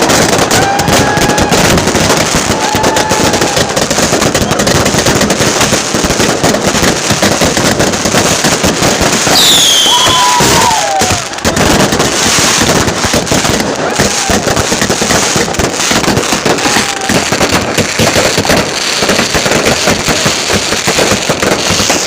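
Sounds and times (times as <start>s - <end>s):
falling firework whistle: 0.0s - 4.8s, 9.2s - 12.6s
fireworks crackling and banging: 0.0s - 22.0s.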